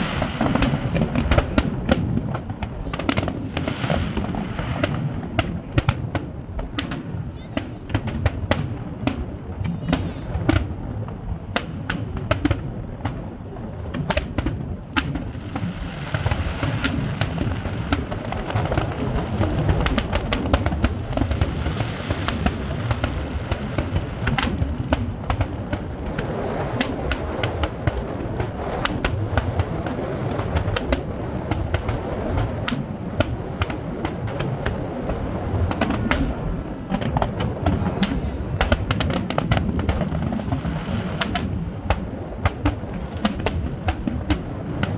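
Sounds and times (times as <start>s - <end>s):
fireworks popping and banging: 0.0s - 44.9s
low rumble: 27.6s - 44.9s.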